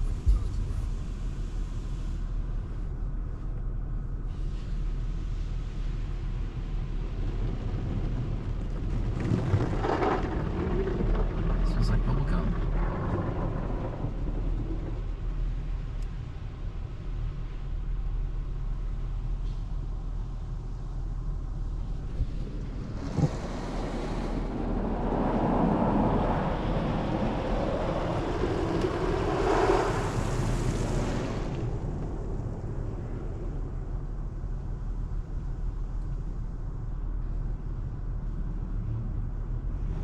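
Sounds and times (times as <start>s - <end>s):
low hum: 0.0s - 40.0s
water spray hissing on car: 27.6s - 31.8s.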